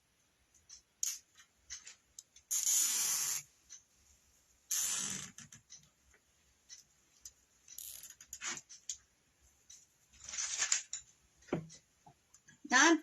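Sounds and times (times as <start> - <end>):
zip ties clicking: 1.0 - 1.2, 2.5 - 3.4, 4.7 - 5.6
plastic rustling: 10.2 - 11.0.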